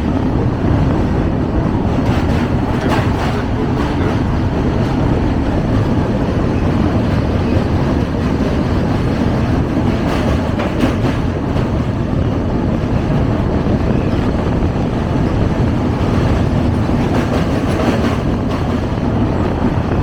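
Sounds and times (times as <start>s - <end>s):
train wheels rumbling on rails: 0.0s - 20.0s
clattering knocks: 2.0s - 6.0s.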